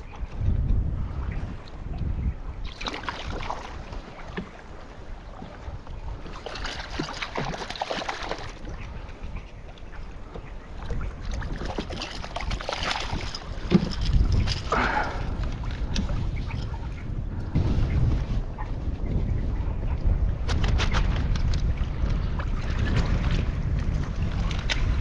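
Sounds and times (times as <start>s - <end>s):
water splashing against kayak: 0.0s - 18.2s
wind rumble on microphone: 0.0s - 25.0s.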